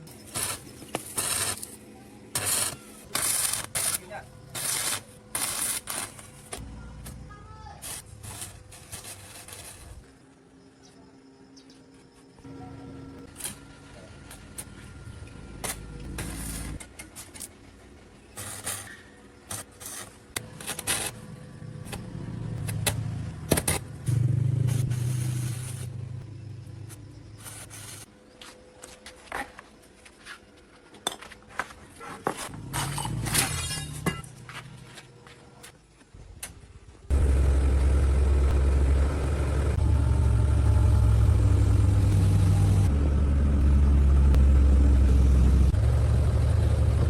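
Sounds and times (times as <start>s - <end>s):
steel clanking and scraping: 32.3s - 34.6s
low machine rumble: 37.1s - 47.0s.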